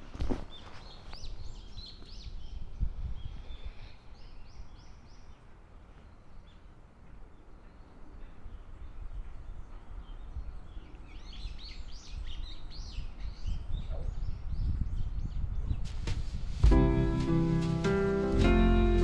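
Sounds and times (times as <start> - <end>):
small birds chirping: 0.1 - 16.1
steady low rumble: 15.8 - 19.0.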